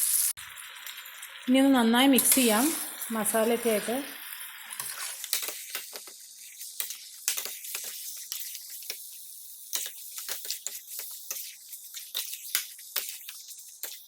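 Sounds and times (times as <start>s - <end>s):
frying hiss: 0.0s - 14.0s
spoon scraping and squelching: 4.7s - 14.0s.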